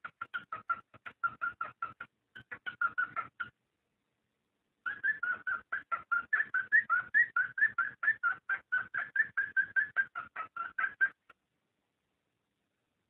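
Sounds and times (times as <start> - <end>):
cockatiel chirping: 0.0 - 3.6, 4.8 - 11.3.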